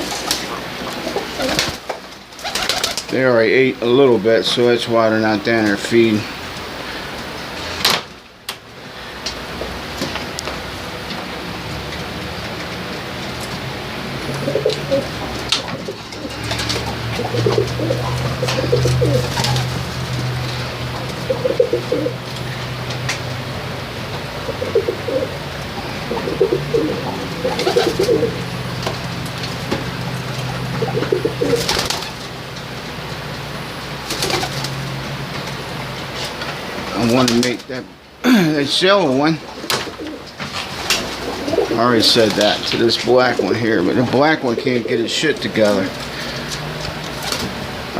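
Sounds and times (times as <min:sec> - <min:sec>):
pigeons cooing: 0:00.8 - 0:01.8, 0:02.4 - 0:03.1, 0:14.1 - 0:22.2, 0:24.3 - 0:28.8, 0:30.0 - 0:32.2, 0:40.9 - 0:42.4.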